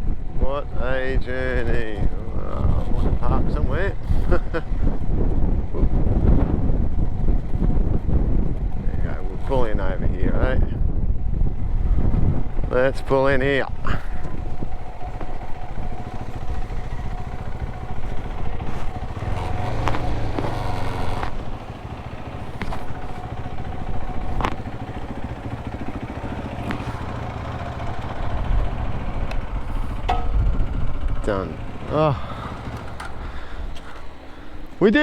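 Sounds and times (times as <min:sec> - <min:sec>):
motorcycle engine low rumble: 0:00.0 - 0:35.0
sharp clicks or knocks: 0:30.0 - 0:30.5.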